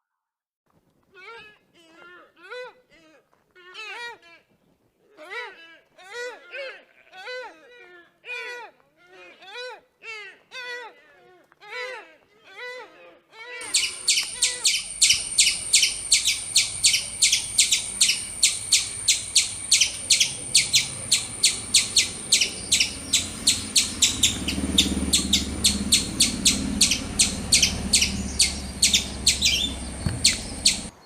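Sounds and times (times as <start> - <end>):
bird chirping: 13.6 - 31.0
steady high whine: 13.7 - 30.9
low rumble: 14.8 - 30.9.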